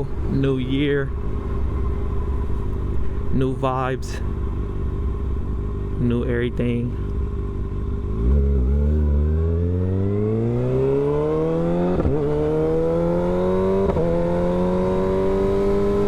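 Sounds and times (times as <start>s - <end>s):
motorcycle engine accelerating: 4.3s - 16.0s.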